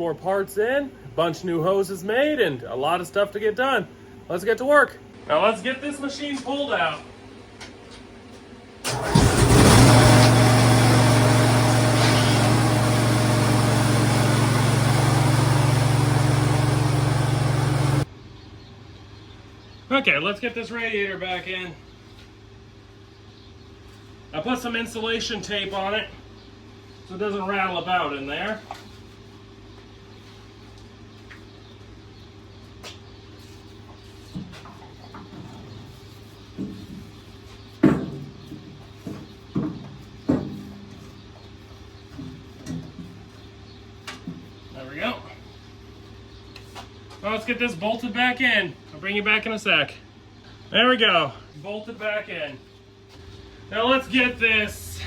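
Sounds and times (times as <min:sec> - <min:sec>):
steady low hum: 0:00.0 - 0:08.8, 0:12.4 - 0:37.9, 0:38.6 - 0:55.0
engine cranking and idling: 0:08.8 - 0:18.1, 0:53.2 - 0:55.0.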